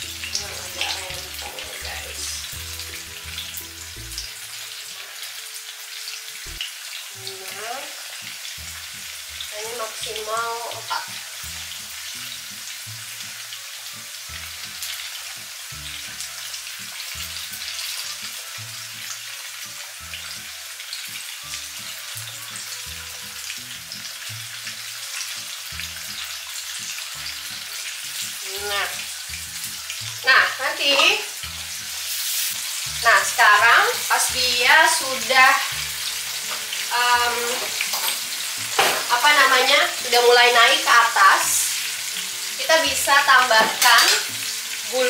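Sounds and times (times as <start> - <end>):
oil sizzling in a pan: 0.0 - 45.0.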